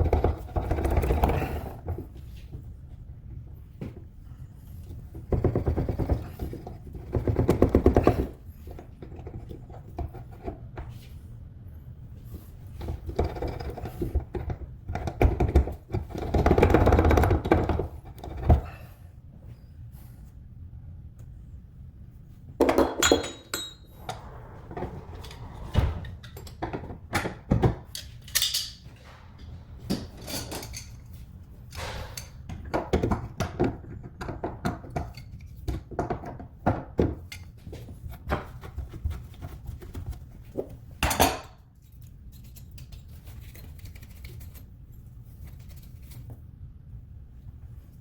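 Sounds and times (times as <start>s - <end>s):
steady low hum: 0.0s - 41.0s
metal tools clinking: 23.0s - 24.0s, 27.9s - 29.0s, 30.2s - 31.1s.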